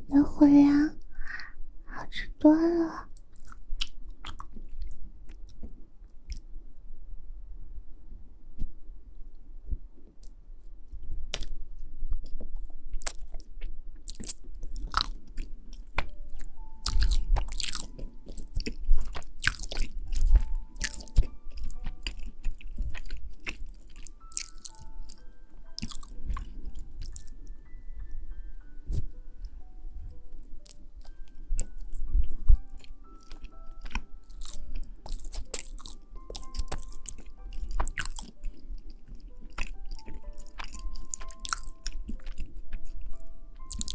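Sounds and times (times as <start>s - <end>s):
chewing and crunching food: 3.1s - 6.5s, 10.2s - 28.1s, 30.1s - 43.9s
simple melody of single notes: 14.2s - 43.9s.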